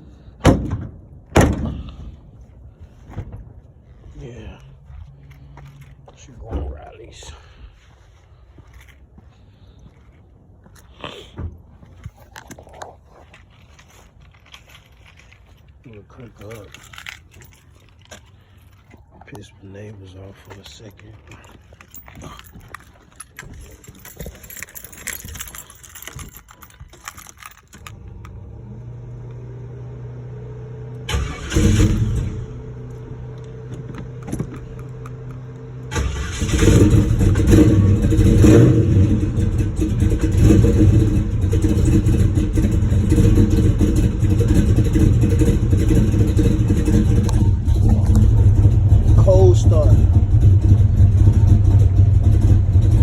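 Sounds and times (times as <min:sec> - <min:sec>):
car engine idling unevenly: 0:00.0 - 0:10.5, 0:30.9 - 0:53.0.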